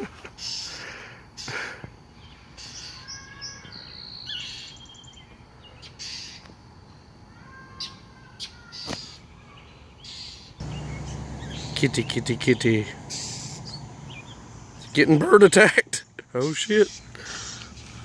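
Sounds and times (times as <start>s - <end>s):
bird chirping: 10.6s - 14.9s.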